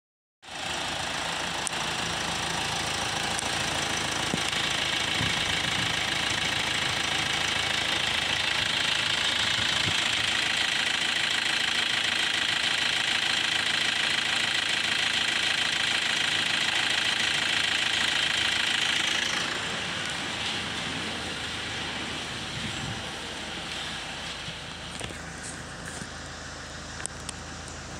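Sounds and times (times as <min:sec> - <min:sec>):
diesel engine idling: 0:00.4 - 0:27.9.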